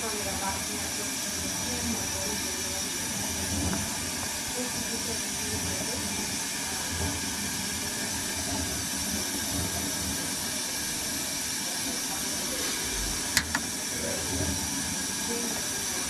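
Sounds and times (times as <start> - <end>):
steady hissing: 0.0 - 16.0.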